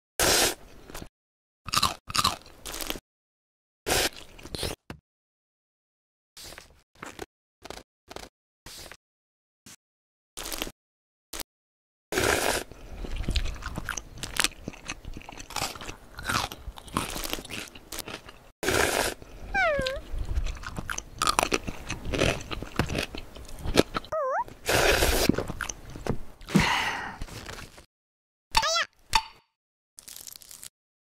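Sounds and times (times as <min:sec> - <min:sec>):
wet chewing and crunching: 0:01.7 - 0:03.0, 0:07.0 - 0:08.3, 0:10.4 - 0:10.7, 0:12.2 - 0:26.2, 0:30.0 - 0:30.7
short squeaky tone: 0:24.1 - 0:24.4, 0:28.6 - 0:28.9.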